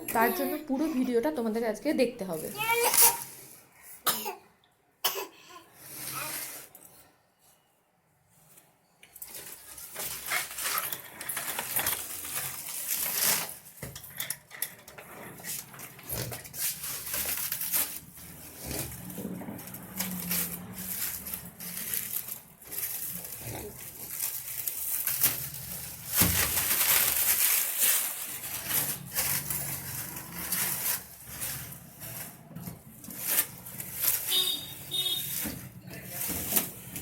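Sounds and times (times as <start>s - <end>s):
packaging rustling: 9.3s - 13.8s, 15.4s - 37.0s.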